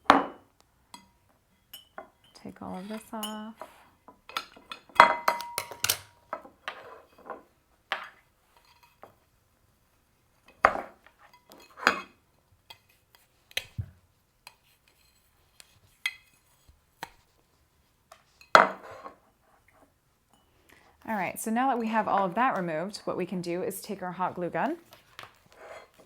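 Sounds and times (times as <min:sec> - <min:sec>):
ceramic cups clinking: 0:01.0 - 0:06.1.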